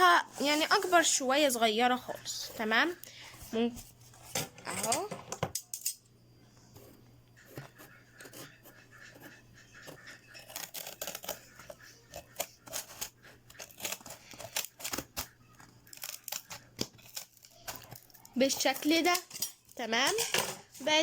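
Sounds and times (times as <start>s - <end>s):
scissors cutting cardboard: 6.8s - 19.1s.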